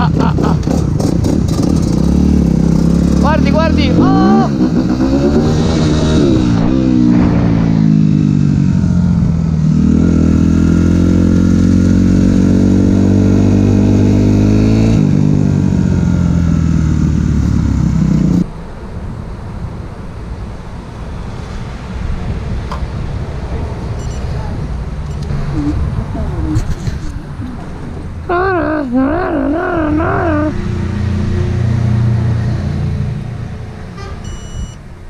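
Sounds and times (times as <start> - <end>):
motorcycle engine revving: 0.0 - 18.5
low rumble: 3.9 - 10.6.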